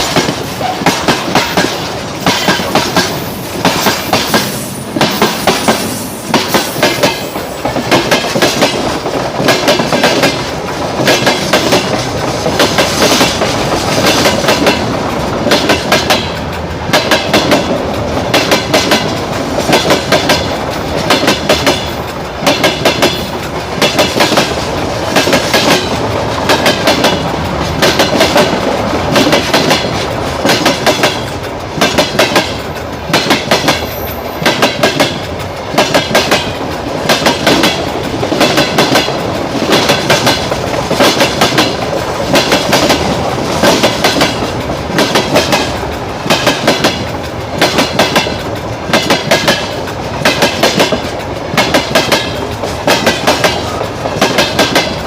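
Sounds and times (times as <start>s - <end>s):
train rolling rumble: 0.0s - 55.0s
train wheels clickety-clack: 0.0s - 55.0s.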